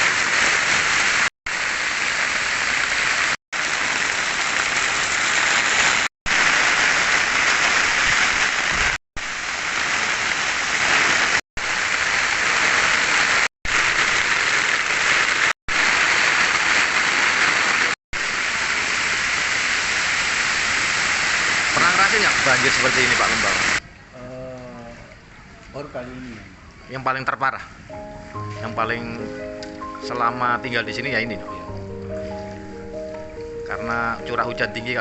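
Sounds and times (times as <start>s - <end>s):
heavy rain pouring: 0.0s - 23.8s.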